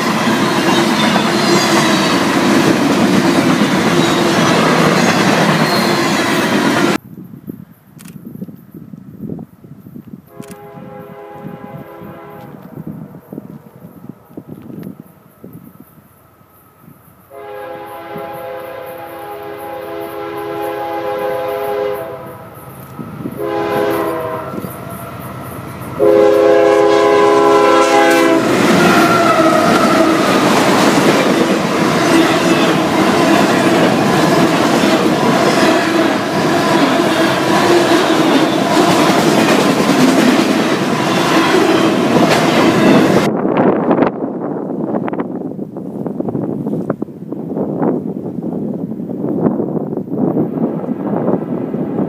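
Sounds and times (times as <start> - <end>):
train engine and wheels rumbling: 0.0 - 52.0
locomotive air horn blasts: 10.3 - 12.7, 17.3 - 22.6, 23.3 - 25.3, 25.9 - 30.5.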